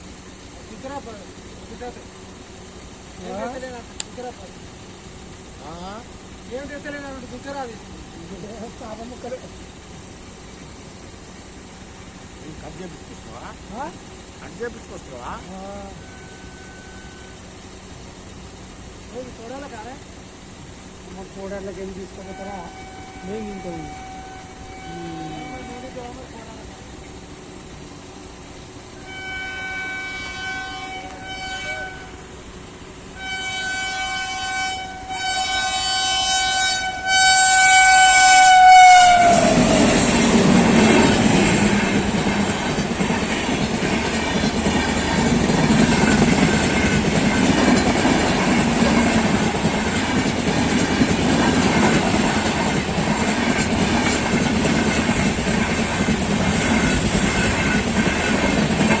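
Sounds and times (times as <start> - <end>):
train rolling past: 0.0 - 59.0
train horn blasts: 15.7 - 17.6, 22.1 - 26.5, 29.0 - 32.5, 33.1 - 42.0.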